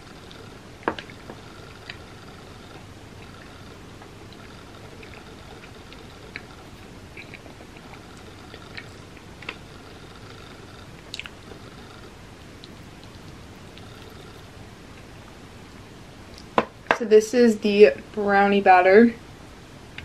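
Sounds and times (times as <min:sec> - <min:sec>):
person chewing bread: 0:00.0 - 0:15.2.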